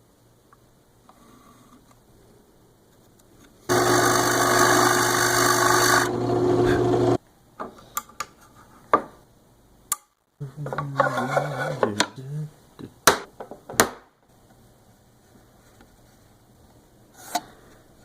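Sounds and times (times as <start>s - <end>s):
power tool motor hum: 3.7s - 7.2s
tool rasping on wood: 3.7s - 7.2s.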